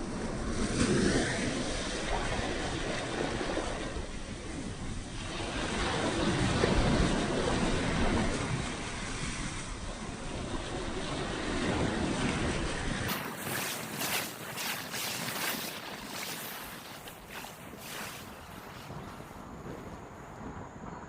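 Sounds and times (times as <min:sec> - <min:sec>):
wind buffeting microphone: 0:00.1 - 0:21.0
sea surf: 0:00.2 - 0:21.0
wind rushing: 0:13.1 - 0:21.0.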